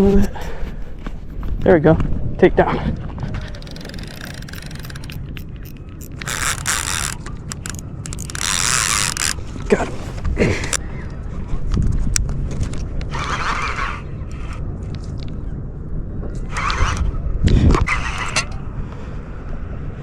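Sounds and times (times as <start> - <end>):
fishing reel clicks and scraping: 3.4 - 10.8
fishing reel rasping: 3.4 - 10.8.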